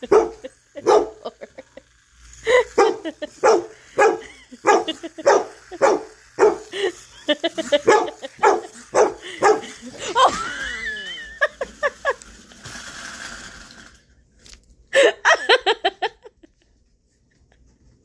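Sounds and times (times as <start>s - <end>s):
dog barking: 0.0s - 1.4s, 2.8s - 6.7s, 7.7s - 9.8s.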